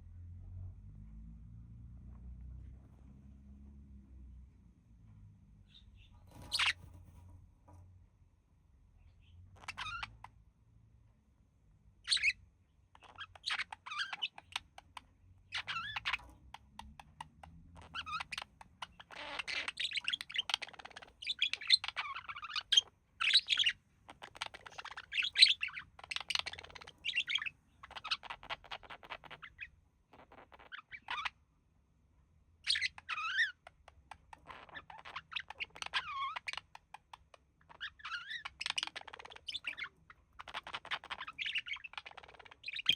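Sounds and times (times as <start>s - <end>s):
budgies chirping and warbling: 5.6s - 7.3s, 9.0s - 10.4s, 12.0s - 31.4s, 32.6s - 42.9s.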